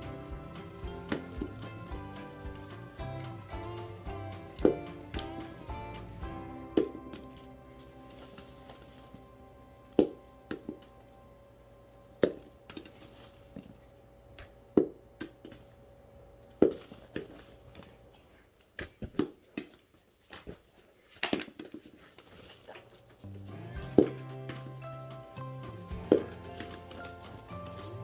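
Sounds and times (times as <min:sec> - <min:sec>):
rubber ball bouncing: 0:00.0 - 0:07.5, 0:10.0 - 0:10.9, 0:12.2 - 0:13.0, 0:14.4 - 0:15.7, 0:16.5 - 0:17.4, 0:18.7 - 0:20.6, 0:23.8 - 0:25.0, 0:25.9 - 0:28.0
faint music: 0:00.0 - 0:28.0.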